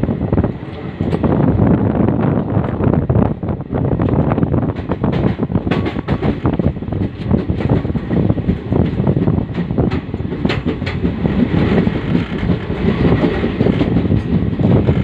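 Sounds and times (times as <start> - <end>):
train rumble: 0.0 - 15.0
wheels clattering on track: 4.0 - 15.0.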